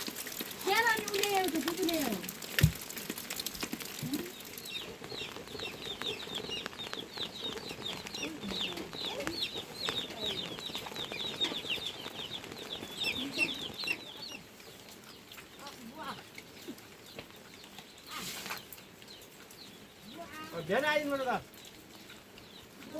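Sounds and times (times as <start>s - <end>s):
chickens clucking: 4.0s - 22.9s.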